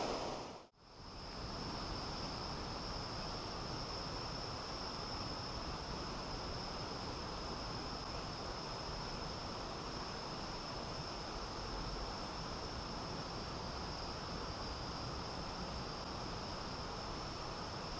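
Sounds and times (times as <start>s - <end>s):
river rushing: 0.0s - 0.7s.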